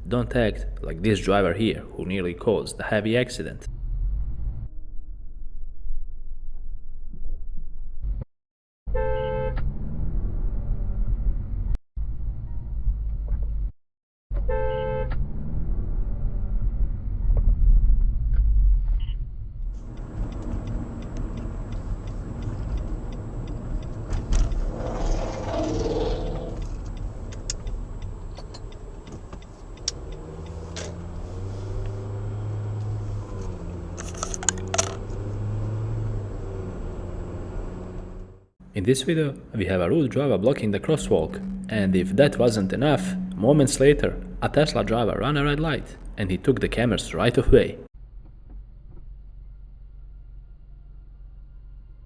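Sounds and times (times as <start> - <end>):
engine and road rumble: 0.0 - 8.3, 8.9 - 13.7, 14.3 - 52.0
rushing of passing vehicle: 19.8 - 38.5, 39.6 - 45.8
small rattles and clicks: 34.0 - 35.1.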